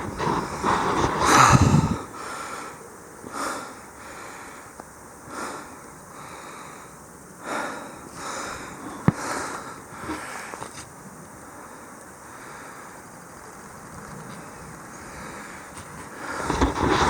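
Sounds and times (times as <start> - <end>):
wind buffeting microphone: 0.0 - 2.2, 13.8 - 17.0
person breathing: 0.0 - 10.7, 11.4 - 13.0.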